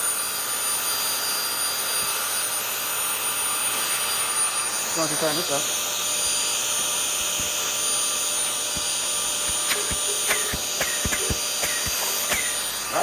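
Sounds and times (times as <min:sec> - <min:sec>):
vacuum running through hose: 0:00.0 - 0:13.0
sharp clicks and ticks: 0:08.8 - 0:12.6.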